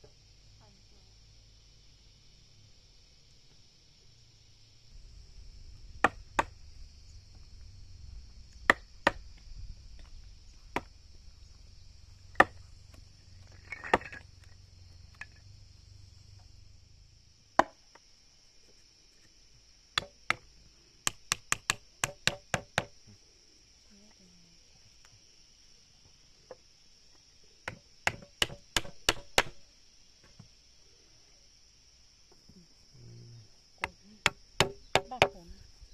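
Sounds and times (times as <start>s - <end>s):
hand tool striking wood: 6.0s - 6.6s, 8.7s - 9.3s, 10.7s - 11.0s, 12.3s - 13.0s, 13.6s - 14.3s, 20.0s - 23.0s, 27.7s - 29.6s, 33.8s - 35.4s.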